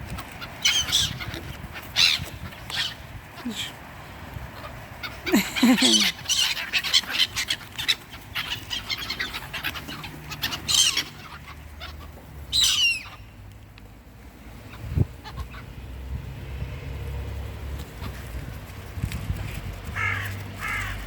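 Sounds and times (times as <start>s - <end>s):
small birds chirping: 0.0s - 13.6s.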